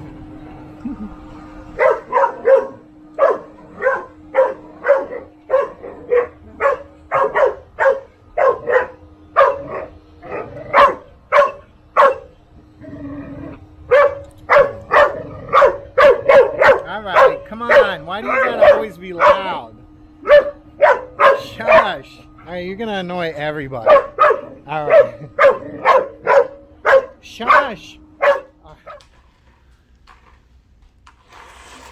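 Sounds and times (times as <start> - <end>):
dog barking: 1.8 - 12.4, 13.9 - 22.0, 23.8 - 29.1.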